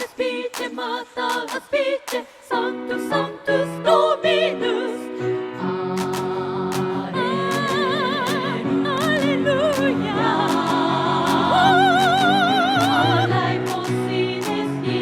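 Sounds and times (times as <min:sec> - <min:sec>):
women's chorus singing: 0:00.0 - 0:15.0
piano accompaniment: 0:05.3 - 0:15.0
sharp tapping beat: 0:06.0 - 0:14.8.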